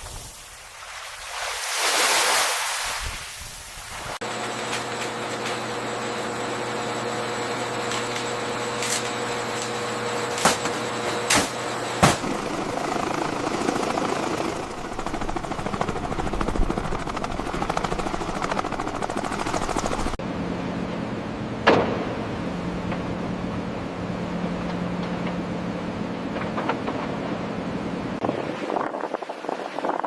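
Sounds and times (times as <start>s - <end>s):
mechanical drone: 4.2s - 29.0s
rapid fluttering throb: 12.2s - 20.2s.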